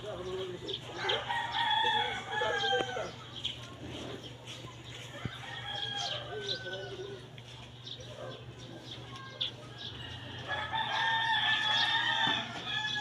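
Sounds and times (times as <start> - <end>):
rooster crowing: 1.0 - 3.2, 5.2 - 7.2, 10.0 - 13.0.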